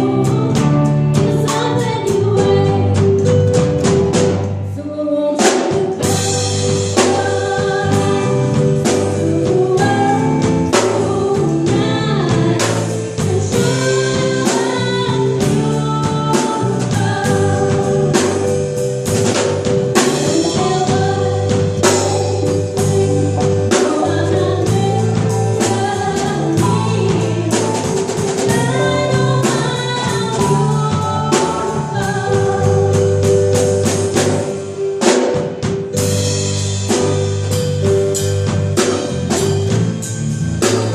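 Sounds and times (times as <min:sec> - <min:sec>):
person singing: 0:00.0 - 0:03.5, 0:04.6 - 0:18.8, 0:19.9 - 0:33.7
drum kit hits: 0:00.0 - 0:04.6, 0:05.4 - 0:40.9
band rhythm section: 0:00.0 - 0:04.8, 0:05.4 - 0:40.9.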